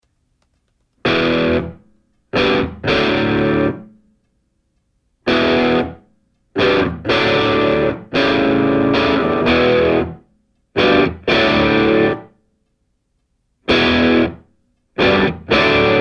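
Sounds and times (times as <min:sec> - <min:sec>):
distorted electric guitar chords: 0:01.0 - 0:01.8, 0:02.4 - 0:04.0, 0:05.3 - 0:06.0, 0:06.6 - 0:10.2, 0:10.8 - 0:12.3, 0:13.7 - 0:16.0.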